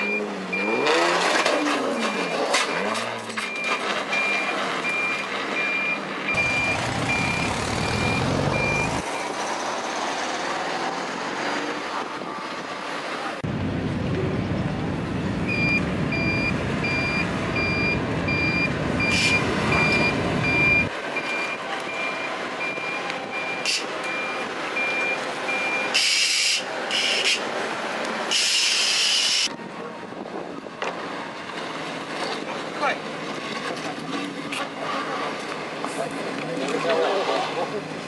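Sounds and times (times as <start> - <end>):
reversing alarm beeping: 0.0 - 1.1, 2.0 - 9.4, 15.5 - 26.6
low engine rumble: 13.2 - 20.9.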